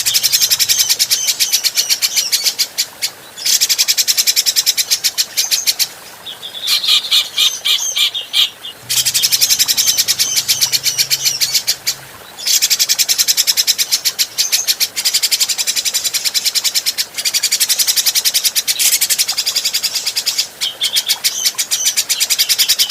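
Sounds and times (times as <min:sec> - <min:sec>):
bird chattering call: 0:06.7 - 0:13.2.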